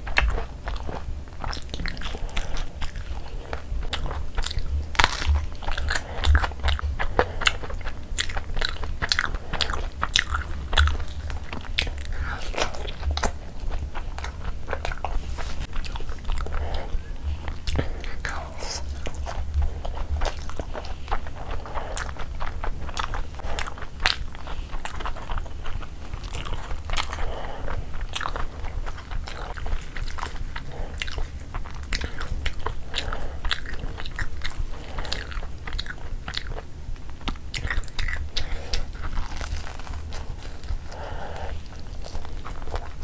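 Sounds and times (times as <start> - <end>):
person chewing food: 0.0 - 43.0.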